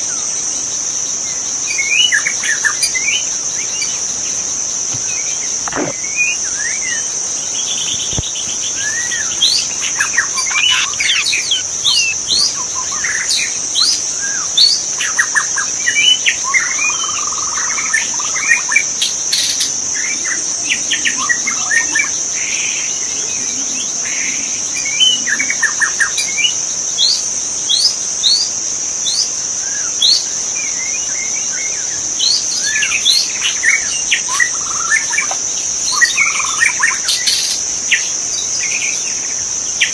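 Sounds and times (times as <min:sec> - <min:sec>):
high insect drone: 0:00.0 - 0:39.9
bird whistling and chirping: 0:08.9 - 0:12.9.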